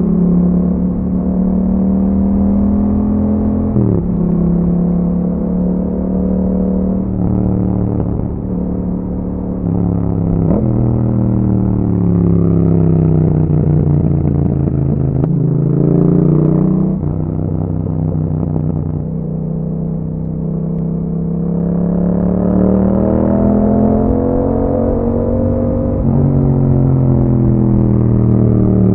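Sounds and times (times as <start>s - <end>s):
motorcycle engine while riding: 0.0s - 28.9s.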